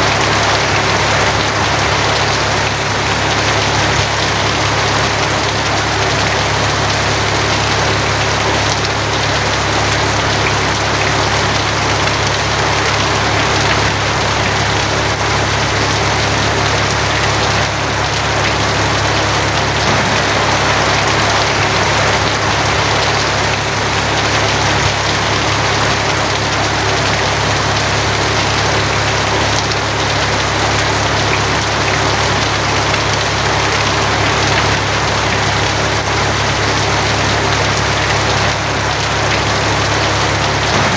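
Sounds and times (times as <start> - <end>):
heavy rain on a tin roof: 0.0 - 40.9
low rumble: 19.8 - 24.2.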